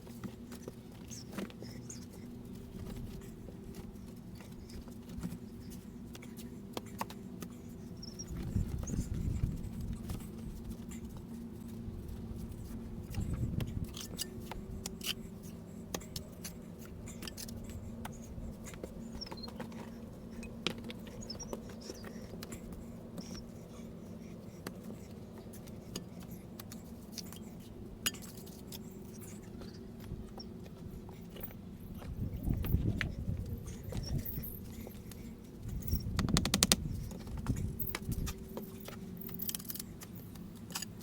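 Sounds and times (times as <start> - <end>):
steady low hum: 0.0 - 41.0
stone-laying clicks and taps: 36.2 - 36.8.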